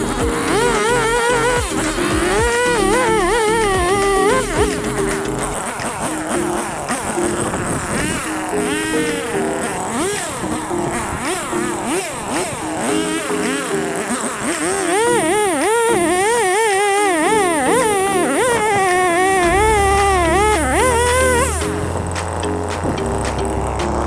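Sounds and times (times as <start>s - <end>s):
deep bass: 0.0s - 5.6s, 19.4s - 24.0s
background music with held notes: 0.0s - 16.3s, 17.2s - 24.0s
chainsaw cutting through log: 0.0s - 24.0s.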